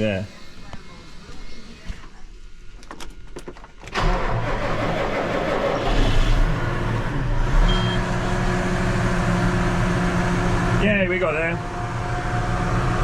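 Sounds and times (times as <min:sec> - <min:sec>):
diesel engine cranking and running: 0:03.6 - 0:13.0
short high beep: 0:07.6 - 0:08.1.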